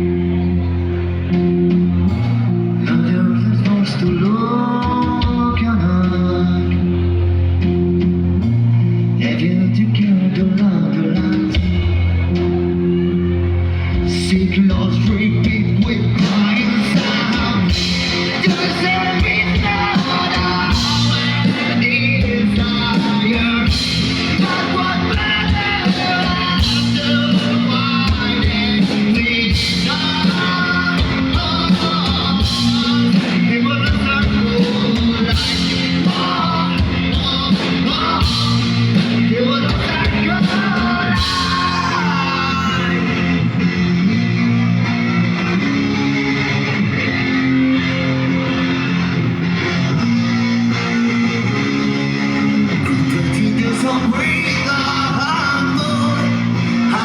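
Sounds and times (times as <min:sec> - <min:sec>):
person singing: 0:00.0 - 0:07.2, 0:09.2 - 0:43.6, 0:49.6 - 0:57.0
bass guitar: 0:00.0 - 0:57.0
electric guitar: 0:00.0 - 0:57.0
steady drum beat: 0:14.7 - 0:43.3.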